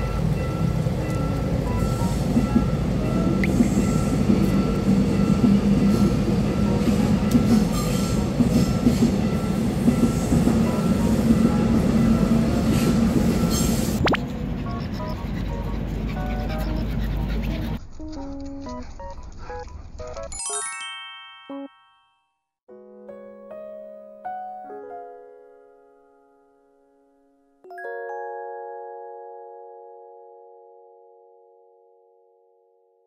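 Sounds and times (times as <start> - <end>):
train wheels rumbling and rattling: 0.0 - 20.0.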